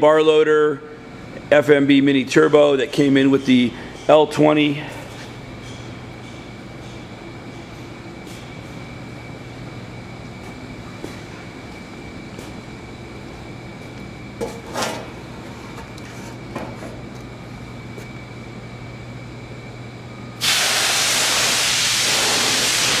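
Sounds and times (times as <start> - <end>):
machinery hum with whine: 0.0 - 23.0
loud even hiss: 20.4 - 23.0.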